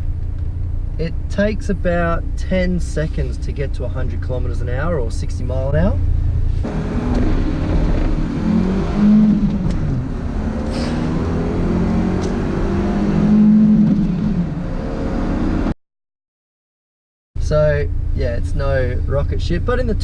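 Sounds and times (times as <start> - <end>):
car engine accelerating hard: 6.6 - 15.7.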